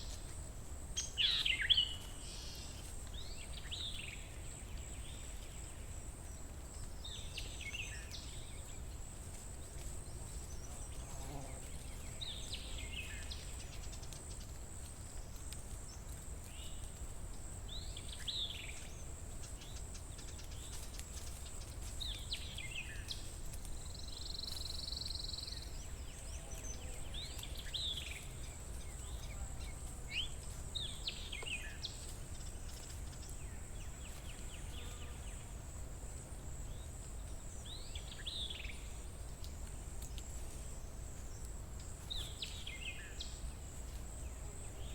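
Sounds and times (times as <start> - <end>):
songbird call: 1.0 - 8.8.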